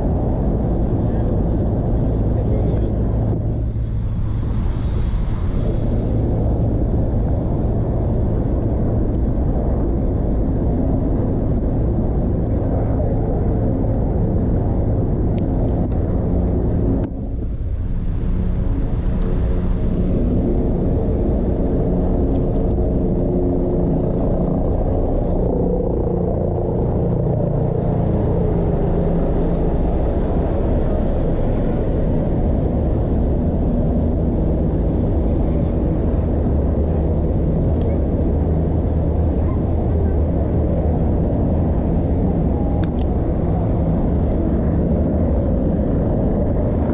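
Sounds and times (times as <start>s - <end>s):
road noise: 0.0s - 46.9s
wind noise: 0.0s - 46.9s.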